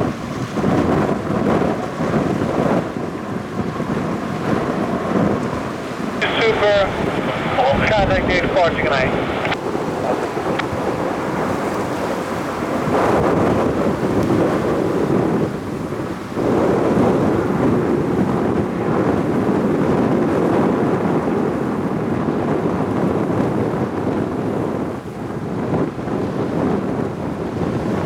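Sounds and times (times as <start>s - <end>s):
wind buffeting microphone: 0.0s - 28.0s
jet engine roar: 2.8s - 14.0s.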